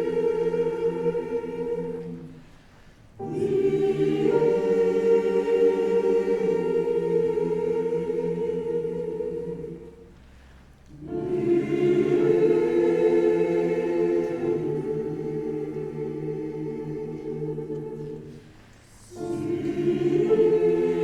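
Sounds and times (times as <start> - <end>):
choir singing in harmony: 0.0 - 21.0.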